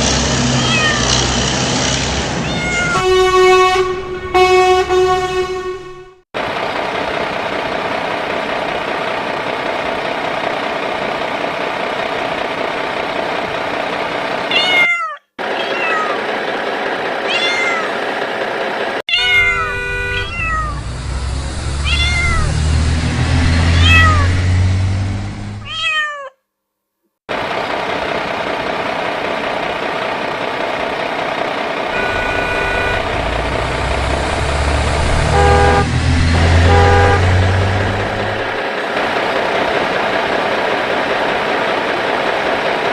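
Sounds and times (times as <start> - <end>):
cat meowing: 0.6 - 1.2, 2.4 - 3.0, 14.5 - 16.2, 17.3 - 18.0, 19.1 - 20.8, 21.8 - 22.6, 23.7 - 24.4, 25.6 - 26.4
toy vehicle horn tones: 2.7 - 6.2, 19.2 - 20.8, 32.0 - 33.5, 35.2 - 37.4.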